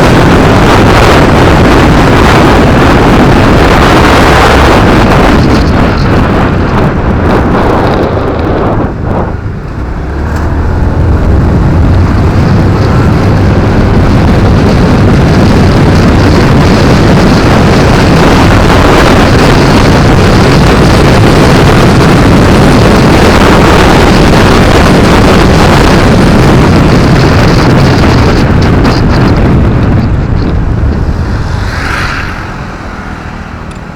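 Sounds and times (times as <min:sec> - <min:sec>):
motorcycle engine running: 0:00.0 - 0:33.9
wind and road noise: 0:00.0 - 0:33.9.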